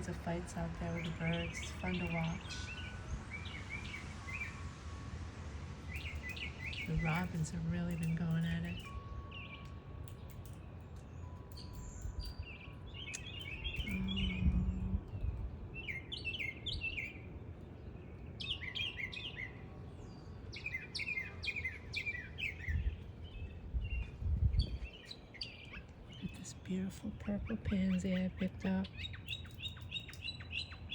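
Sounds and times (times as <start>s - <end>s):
low background rumble: 0.0s - 18.7s
songbirds chirping: 0.0s - 30.9s.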